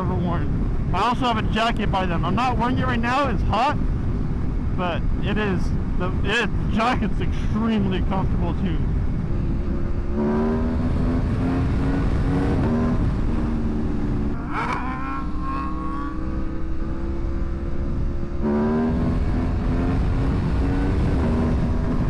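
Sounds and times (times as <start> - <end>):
wind rumble: 0.0 - 22.0
motorcycle engine accelerating: 3.8 - 22.0.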